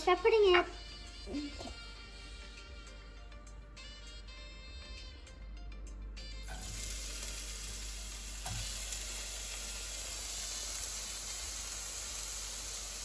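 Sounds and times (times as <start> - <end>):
vegetables sizzling in hot oil: 6.5 - 13.0.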